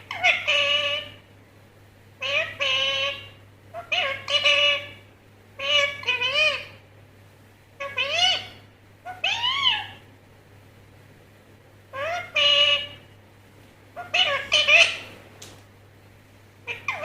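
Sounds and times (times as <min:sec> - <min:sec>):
parrot calling: 0:00.0 - 0:01.3, 0:02.2 - 0:06.8, 0:07.8 - 0:10.1, 0:11.9 - 0:13.1, 0:13.9 - 0:15.2, 0:16.6 - 0:17.0.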